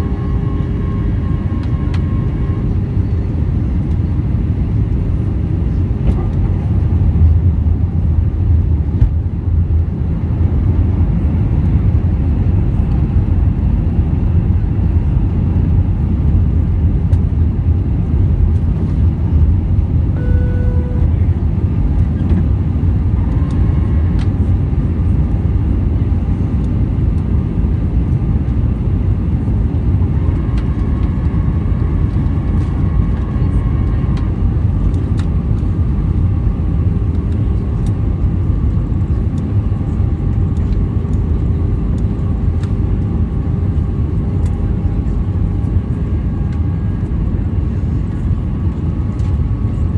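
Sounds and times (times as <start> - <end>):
aircraft cabin engine rumble: 0.0 - 49.9
single tone: 20.2 - 21.4.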